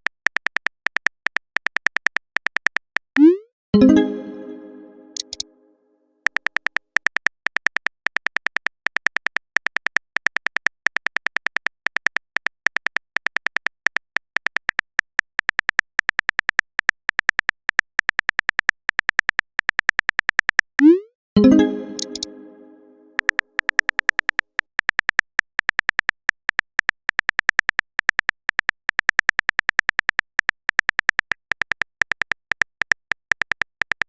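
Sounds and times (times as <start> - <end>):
keyboard typing clicks: 3.2 - 5.4, 20.8 - 23.4.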